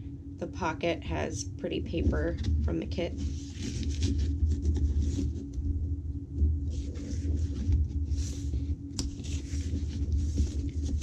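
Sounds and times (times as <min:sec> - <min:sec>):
steady low rumble: 0:00.0 - 0:11.0
paper pages rustling: 0:02.3 - 0:05.6, 0:06.6 - 0:11.0.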